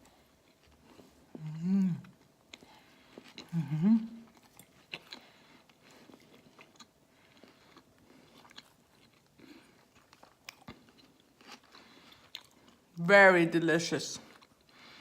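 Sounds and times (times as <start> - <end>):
chewing and crunching food: 0.0 - 13.0, 14.2 - 15.0.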